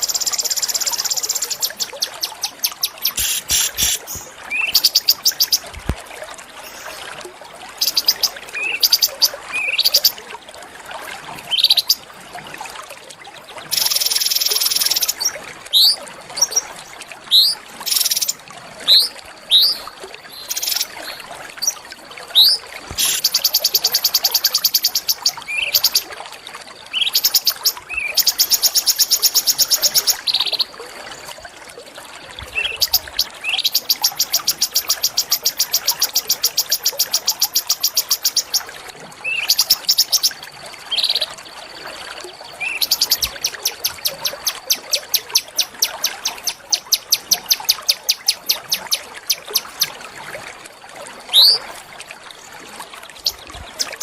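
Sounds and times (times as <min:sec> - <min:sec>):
songbird whistles and trills: 0:00.0 - 0:05.7, 0:51.3 - 0:51.6.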